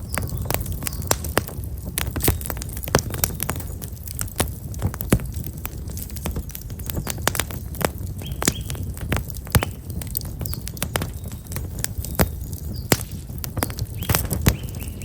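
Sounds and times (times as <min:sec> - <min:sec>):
small bird chirping: 0:00.0 - 0:01.4, 0:08.2 - 0:08.8, 0:13.9 - 0:15.0
wood fire crackling: 0:00.0 - 0:15.0.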